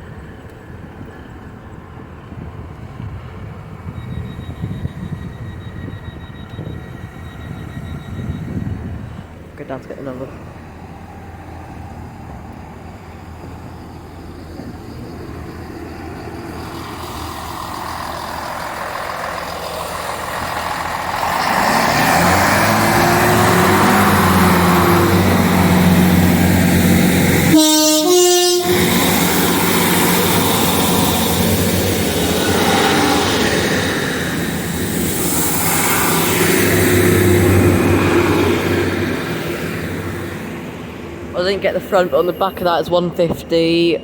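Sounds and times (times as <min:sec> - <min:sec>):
diesel train passing: 0:00.0 - 0:44.0
two-tone train horn: 0:23.5 - 0:31.7.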